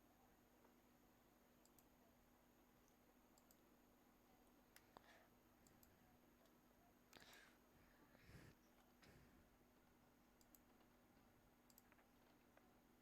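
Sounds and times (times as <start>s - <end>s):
faint electrical hum: 0.0s - 13.0s
computer mouse clicks: 1.6s - 2.0s, 2.8s - 3.6s, 4.7s - 7.4s, 10.4s - 11.0s, 11.6s - 12.7s.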